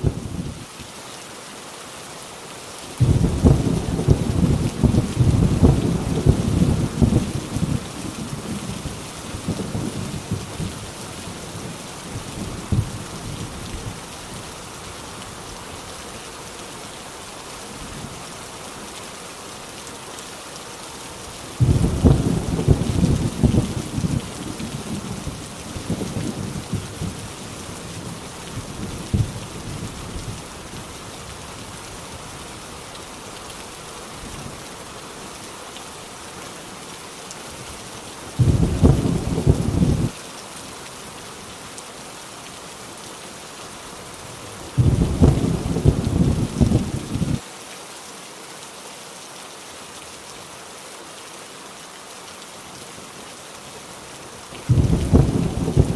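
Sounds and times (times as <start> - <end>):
heavy rain on a tin roof: 0.0 - 55.9
thunder rolling: 21.6 - 24.3, 38.4 - 40.1, 44.8 - 47.4, 54.7 - 55.9.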